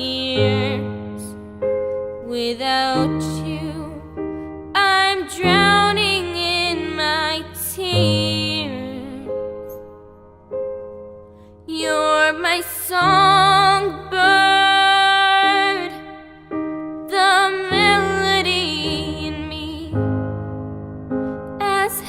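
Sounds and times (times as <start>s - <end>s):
girl singing with vibrato: 0.0s - 1.4s, 2.2s - 9.5s, 11.7s - 20.2s, 21.6s - 22.0s
soft piano chords: 0.0s - 22.0s.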